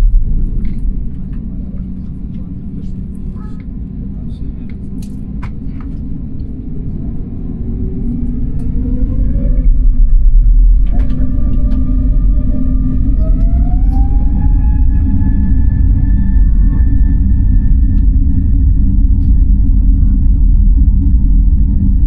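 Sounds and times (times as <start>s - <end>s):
rising engine whine: 0.0s - 22.0s
jet engines spooling up: 6.2s - 22.0s.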